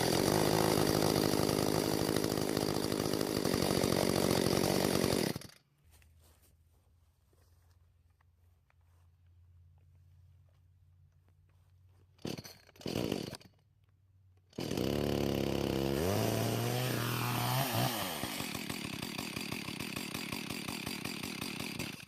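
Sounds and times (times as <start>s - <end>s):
chainsaw engine revving: 0.0s - 5.6s, 12.2s - 13.5s, 14.5s - 22.0s
chainsaw starter cord pulls: 0.0s - 5.6s, 12.2s - 13.7s, 14.3s - 22.0s.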